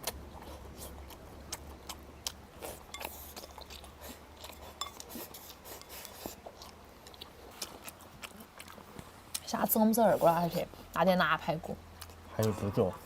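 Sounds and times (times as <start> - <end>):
chewing and biting food: 0.0 - 9.5.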